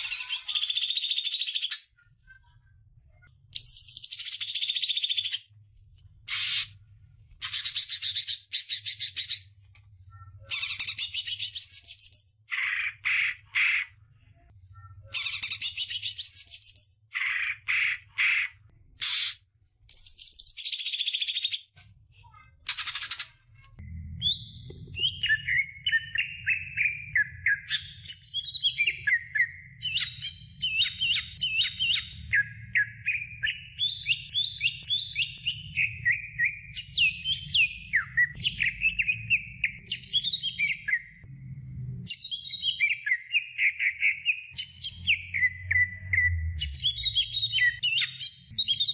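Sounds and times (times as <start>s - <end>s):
bird singing: 3.6s - 5.5s, 14.6s - 19.3s, 23.8s - 41.2s, 42.1s - 48.9s.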